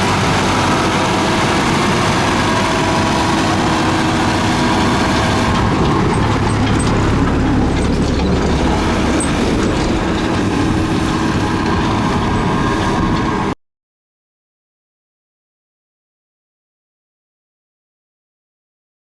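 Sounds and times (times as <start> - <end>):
bulldozer diesel engine running: 0.0 - 13.6.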